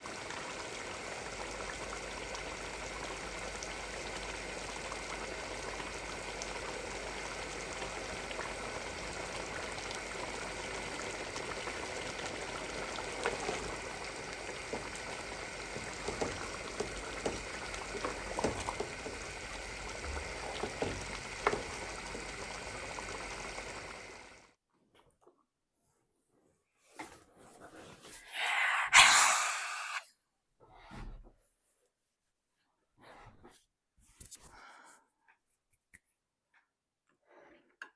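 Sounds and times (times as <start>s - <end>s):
steady sizzling hiss: 0.0s - 24.5s.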